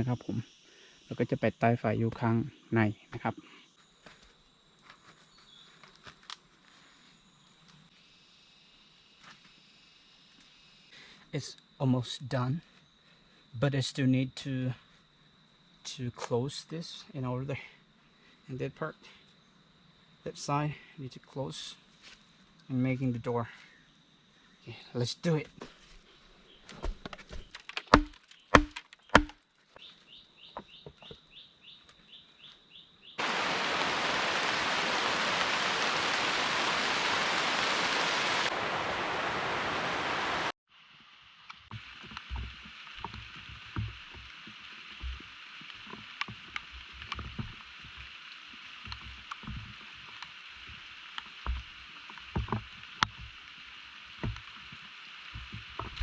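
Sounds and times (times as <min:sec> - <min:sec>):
heavy rain: 0:33.2 - 0:40.6.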